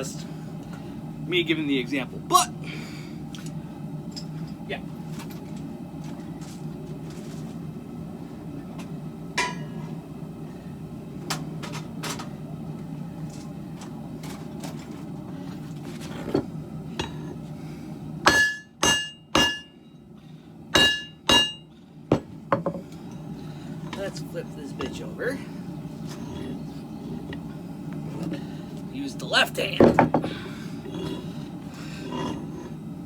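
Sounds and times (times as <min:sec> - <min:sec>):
hammer ringing on anvil: 0:09.4 - 0:09.8, 0:18.3 - 0:19.8, 0:20.8 - 0:21.7.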